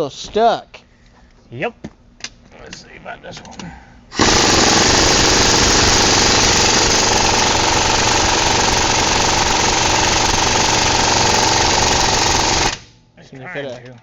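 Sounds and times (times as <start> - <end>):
impact wrench rattling: 4.2 - 12.8.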